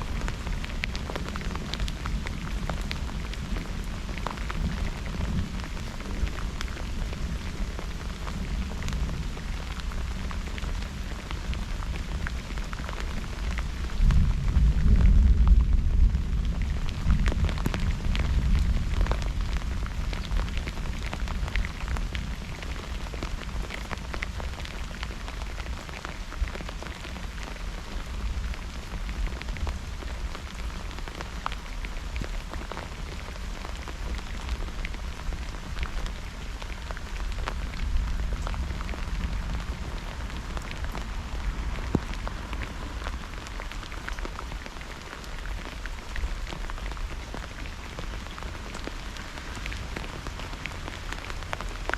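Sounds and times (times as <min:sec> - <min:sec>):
thunder rumble: 0:00.0 - 0:23.3
raindrops ticking: 0:00.0 - 0:51.9.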